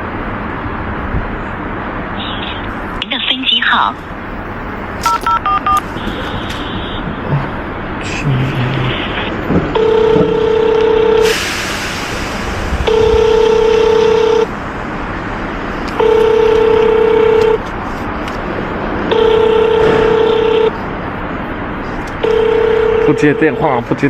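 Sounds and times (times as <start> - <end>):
street background noise: 0.0 - 24.0
phone ringback tone beeps: 5.1 - 5.8, 9.8 - 11.3, 12.9 - 14.5, 16.0 - 17.6, 19.1 - 20.7, 22.2 - 23.7.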